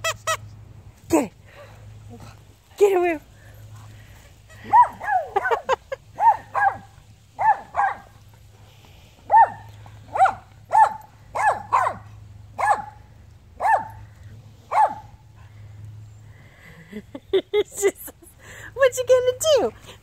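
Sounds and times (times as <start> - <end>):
dog barking: 4.6 - 8.2, 9.3 - 13.0, 13.6 - 14.0, 14.7 - 15.1.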